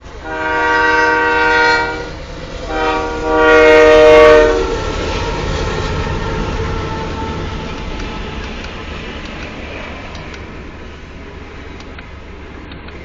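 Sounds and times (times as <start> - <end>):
train rumbling by: 0.0 - 13.0
locomotive air horn blasts: 0.2 - 7.4.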